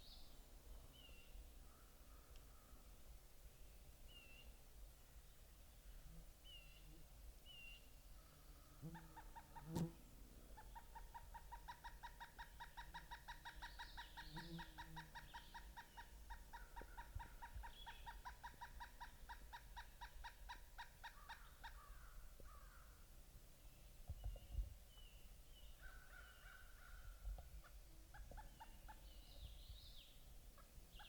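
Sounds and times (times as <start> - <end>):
woodpecker calling: 10.6 - 22.9, 24.1 - 31.0.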